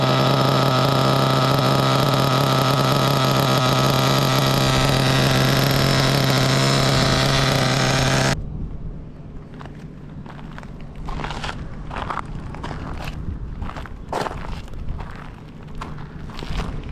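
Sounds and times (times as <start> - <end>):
model engine buzzing: 0.0 - 8.4.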